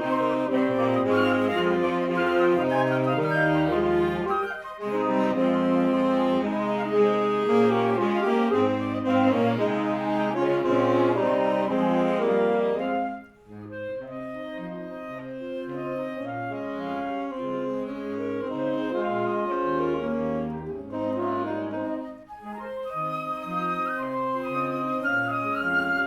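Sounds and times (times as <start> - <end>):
wind band playing: 0.0 - 26.0.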